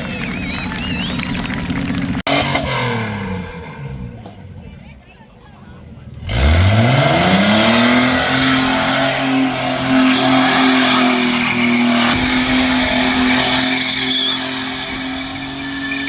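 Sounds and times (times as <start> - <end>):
car engine revving: 0.0 - 4.9, 5.8 - 16.0
tyres squealing on pavement: 7.6 - 16.0.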